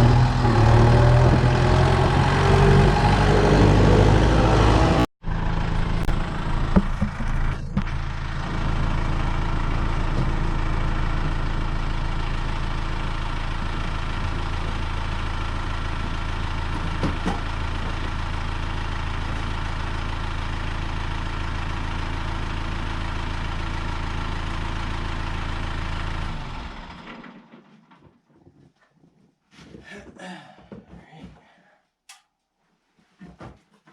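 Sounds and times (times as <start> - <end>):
tractor diesel engine idling: 0.0 - 27.1.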